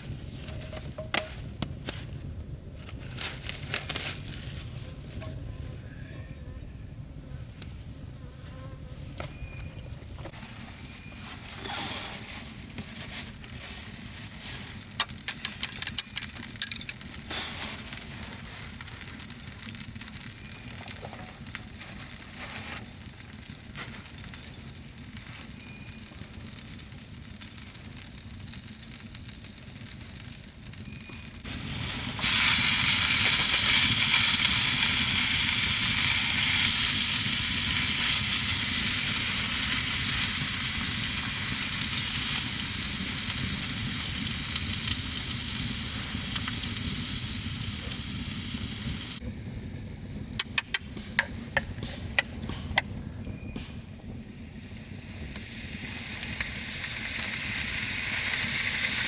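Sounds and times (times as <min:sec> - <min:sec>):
clicks clinks and crackles: 0:15.0 - 0:17.0
food sizzling in hot pan: 0:31.4 - 0:49.2, 0:55.1 - 0:59.0.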